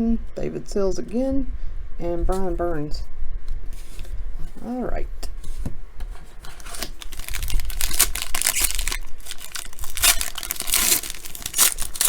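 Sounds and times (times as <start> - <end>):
plastic wrapper tearing and crinkling: 6.4 - 12.0.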